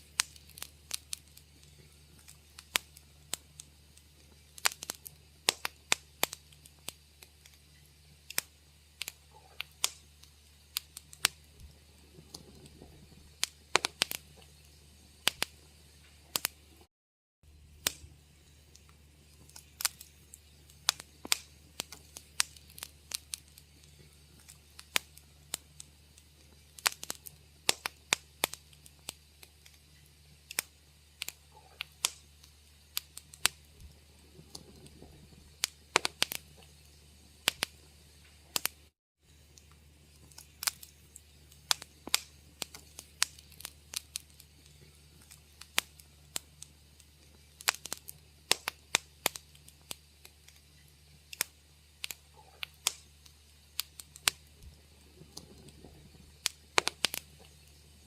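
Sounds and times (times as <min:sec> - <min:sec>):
wood fire crackling: 0:00.0 - 0:16.9, 0:17.5 - 0:58.0
low steady hum: 0:00.0 - 0:58.0.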